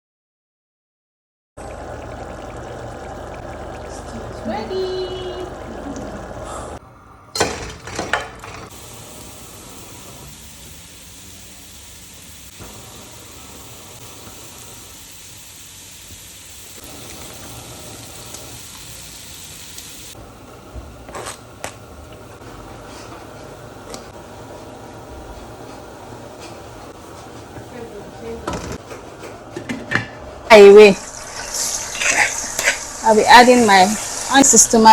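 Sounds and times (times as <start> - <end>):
hot oil sizzling: 8.4 - 20.6, 30.5 - 34.9.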